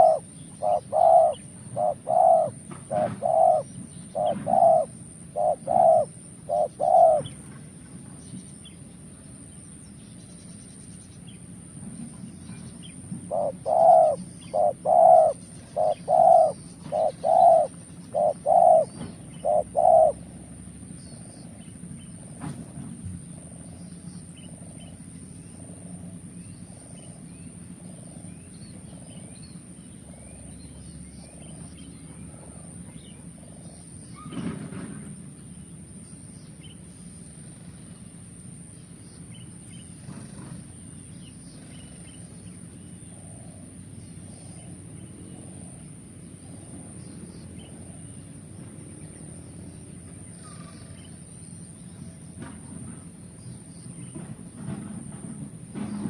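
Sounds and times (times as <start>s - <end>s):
doves cooing: 0.0s - 7.4s, 13.2s - 20.7s
small birds chirping: 0.0s - 22.4s, 38.8s - 54.3s.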